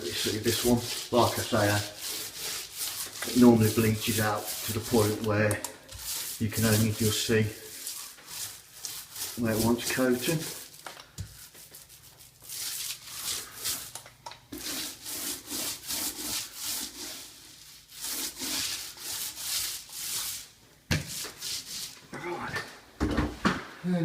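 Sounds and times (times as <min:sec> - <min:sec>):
paint roller swishing on wall: 0:00.0 - 0:22.0.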